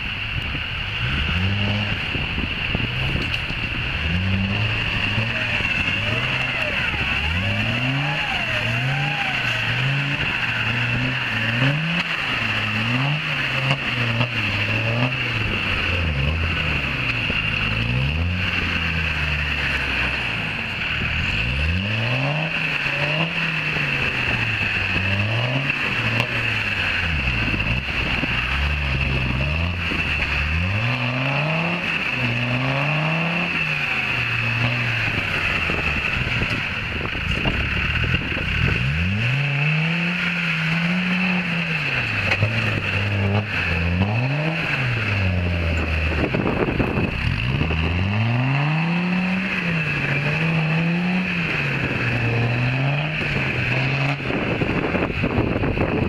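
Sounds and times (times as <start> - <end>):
off-road engine revving: 0.0 - 56.0.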